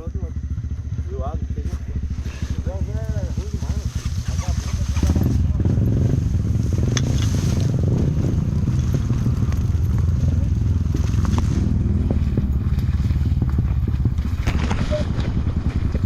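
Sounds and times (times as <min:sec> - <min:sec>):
motorcycle engine running: 0:00.0 - 0:16.0
knocks and rattles: 0:02.4 - 0:16.0.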